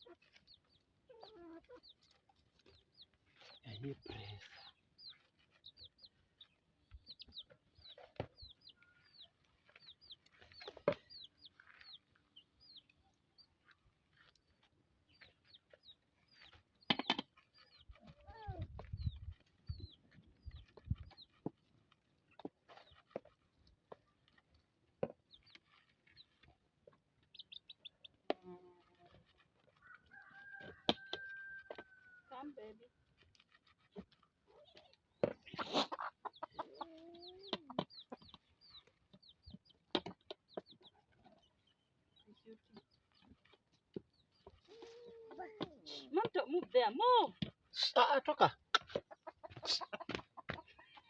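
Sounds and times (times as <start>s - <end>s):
bird chirping: 0.0s - 18.0s, 18.8s - 21.4s, 27.2s - 28.2s, 34.8s - 46.6s
young chickens peeping: 0.0s - 24.5s, 25.2s - 32.6s, 33.4s - 46.9s, 48.6s - 51.0s.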